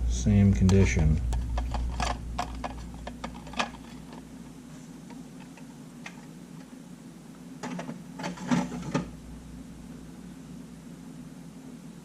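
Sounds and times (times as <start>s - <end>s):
steady low hum: 0.0s - 12.0s
camera parts clicking and clattering: 1.5s - 4.2s.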